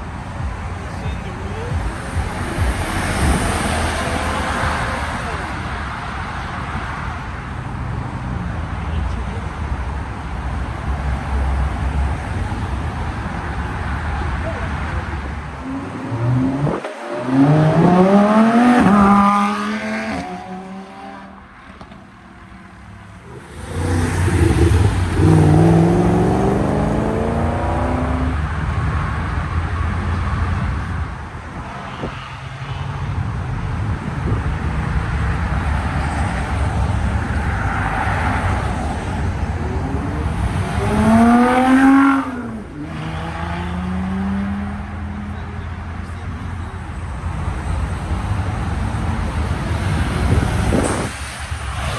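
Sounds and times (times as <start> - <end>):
steady engine rumble: 0.0 - 16.6, 44.6 - 51.9
car engines revving: 0.0 - 51.9.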